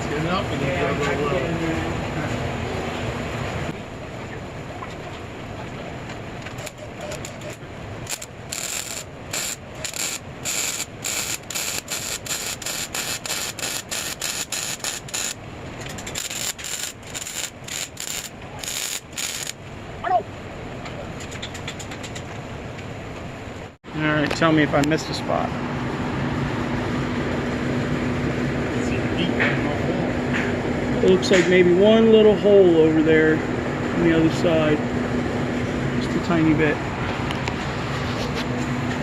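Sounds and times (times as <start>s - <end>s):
arc welder crackling: 6.4s - 19.6s.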